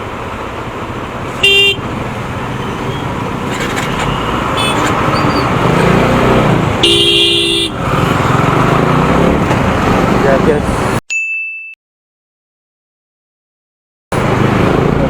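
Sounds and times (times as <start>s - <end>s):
road traffic: 0.0s - 11.0s, 14.1s - 15.0s
vehicle horn honking: 1.4s - 2.0s, 4.0s - 5.5s, 6.8s - 8.2s.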